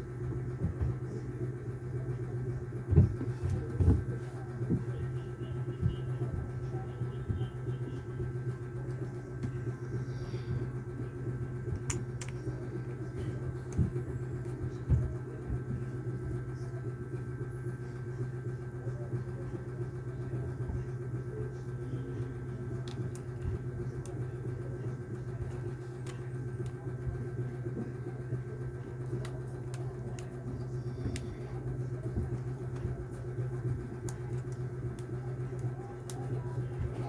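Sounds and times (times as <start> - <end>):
low mechanical hum: 0.0 - 37.0.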